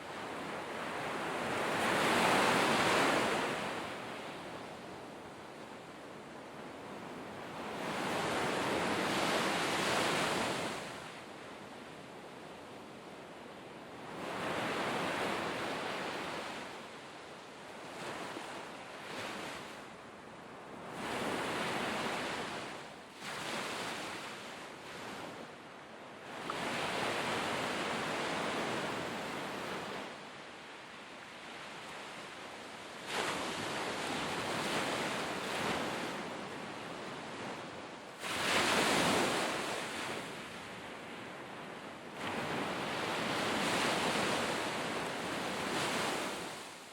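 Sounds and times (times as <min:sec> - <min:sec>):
sea waves breaking on shore: 0:20.7 - 0:25.6, 0:26.2 - 0:46.9.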